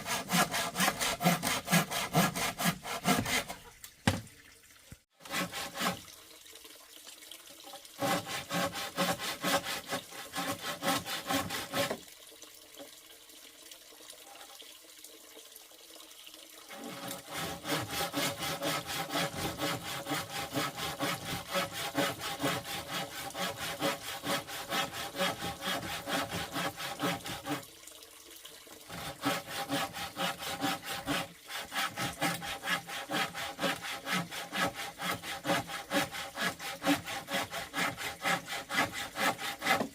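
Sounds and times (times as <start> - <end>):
hand saw cutting wood: 0.0 - 3.7, 5.2 - 6.1, 8.0 - 12.0, 16.7 - 27.6, 28.9 - 39.9.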